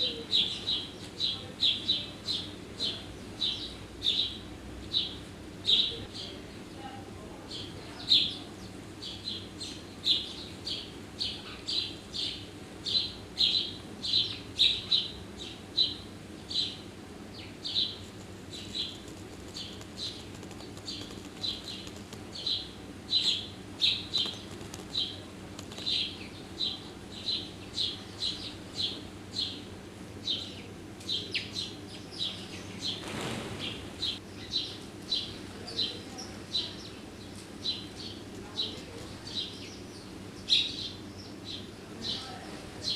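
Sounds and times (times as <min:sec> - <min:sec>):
small bird chirping: 0:07.5 - 0:33.0.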